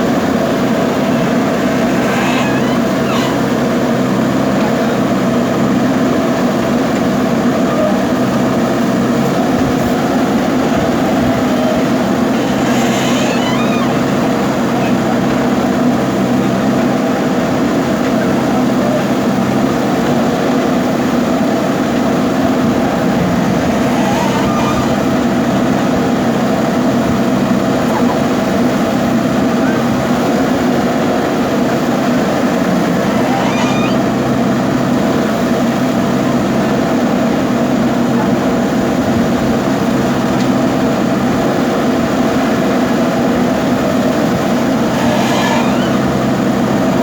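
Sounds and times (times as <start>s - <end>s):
diesel engine running: 0.0s - 47.0s
high squeak: 0.3s - 5.5s, 7.6s - 16.6s, 22.4s - 30.1s, 32.3s - 36.0s, 44.1s - 47.0s.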